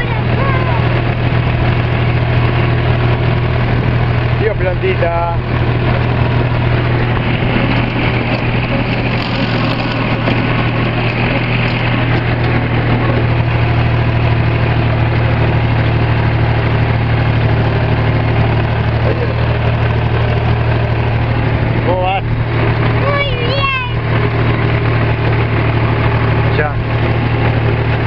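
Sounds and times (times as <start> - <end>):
tractor engine droning: 0.0 - 28.0.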